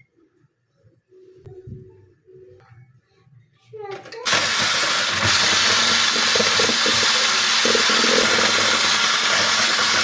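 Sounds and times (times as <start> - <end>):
faint low hum: 0.0 - 4.0
appliance motor running with hiss: 4.2 - 10.0.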